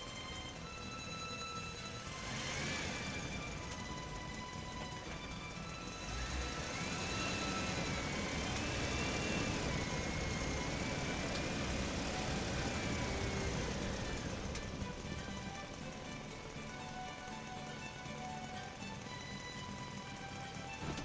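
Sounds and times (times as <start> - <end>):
toy truck motor whining: 0.0 - 21.0.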